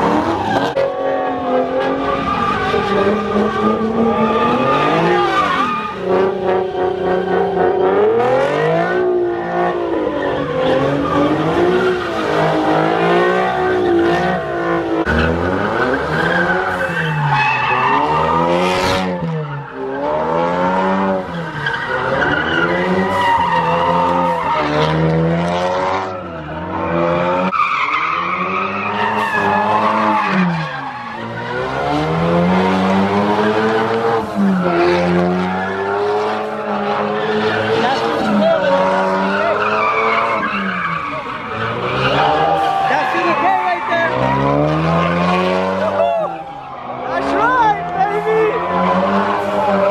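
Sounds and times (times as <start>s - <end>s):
car engine revving: 0.0s - 49.9s
tyres squealing and skidding: 0.0s - 49.9s.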